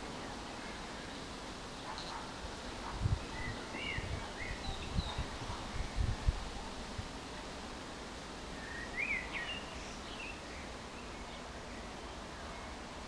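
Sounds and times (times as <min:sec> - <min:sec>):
low outdoor background noise: 0:00.0 - 0:13.0.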